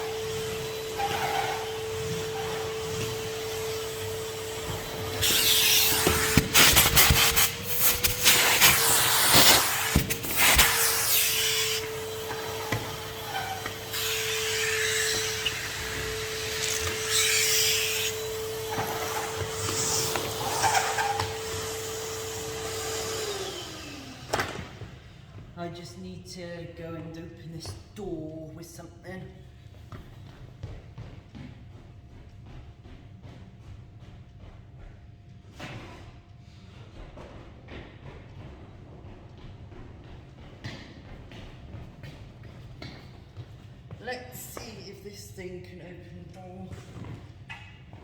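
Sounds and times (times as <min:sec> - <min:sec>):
vacuum cleaner whine: 0:00.0 - 0:25.4.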